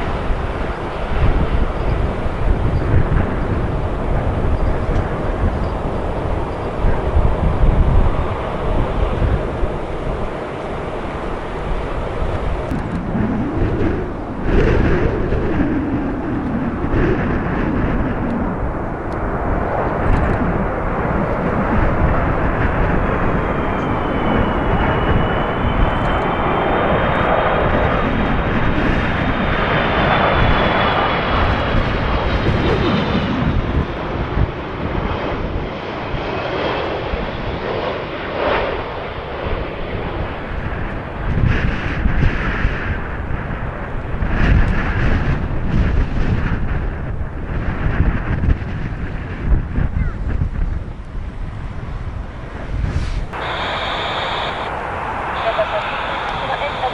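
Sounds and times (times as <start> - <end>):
high turbofan whine: 0.0 - 35.6, 51.6 - 56.9
jet airliner noise: 0.0 - 56.9
wind buffeting microphone: 0.0 - 56.9.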